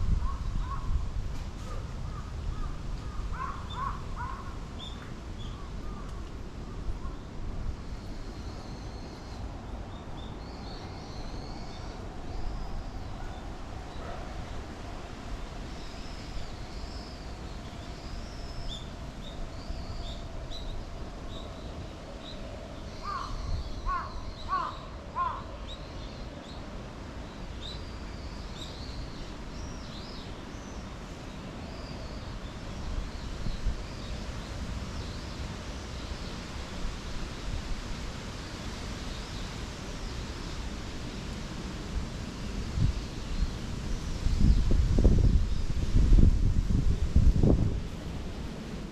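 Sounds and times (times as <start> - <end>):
low wind rumble: 0.0 - 48.9
songbirds chirping: 1.6 - 41.7
crow cawing: 23.9 - 25.5.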